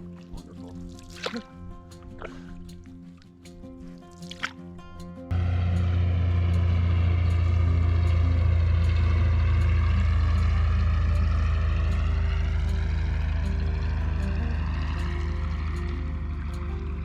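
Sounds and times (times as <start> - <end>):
motor engine humming: 5.3 - 17.0.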